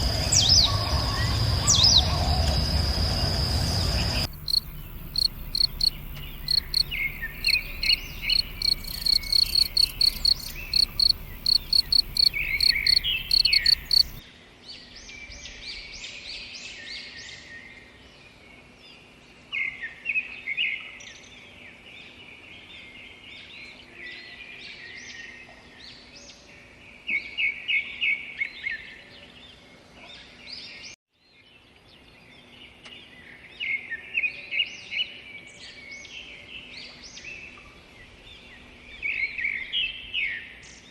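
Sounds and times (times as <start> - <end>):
insect chirping in fast pulses: 0.0 - 14.2
trilling birdsong: 0.0 - 14.2
birds repeating rapid notes: 4.2 - 14.2.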